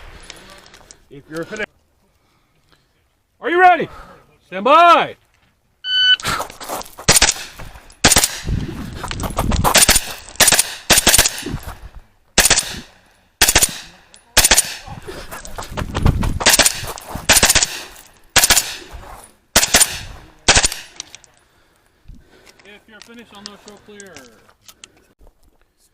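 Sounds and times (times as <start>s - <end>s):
rifle shots firing: 7.1s - 8.5s, 9.7s - 11.6s, 12.4s - 14.9s, 16.4s - 18.9s, 19.6s - 21.0s.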